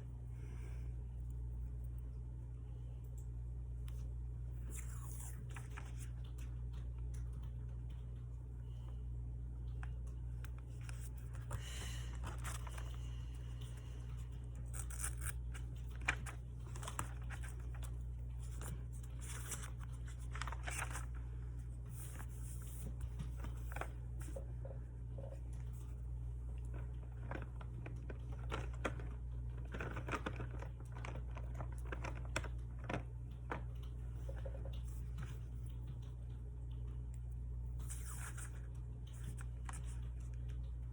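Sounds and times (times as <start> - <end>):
paper and tape rustling: 10.6 - 24.4, 26.7 - 33.6.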